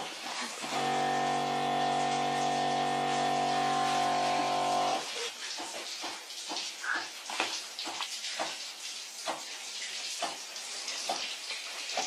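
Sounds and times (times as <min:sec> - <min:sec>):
electric pump humming: 0:00.0 - 0:05.2.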